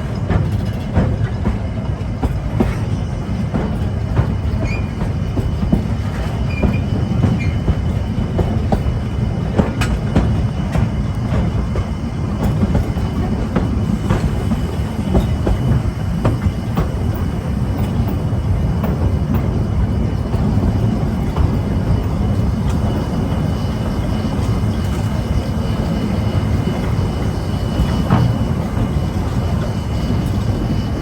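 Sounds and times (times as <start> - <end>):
train rolling rumble: 0.0 - 31.0
wheels clicking over rail joints: 0.0 - 31.0.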